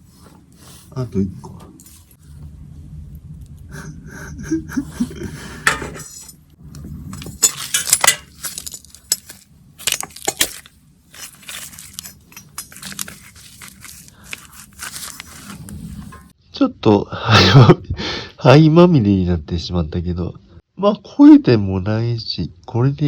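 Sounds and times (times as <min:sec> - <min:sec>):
low rumble: 0:01.9 - 0:07.5
potato clinking and scraping in embers: 0:05.0 - 0:16.4.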